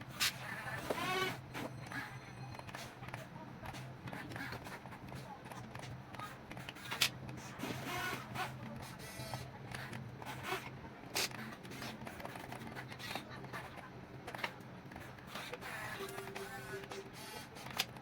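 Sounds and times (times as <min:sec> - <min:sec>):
small electric motors whirring: 0:00.4 - 0:01.4.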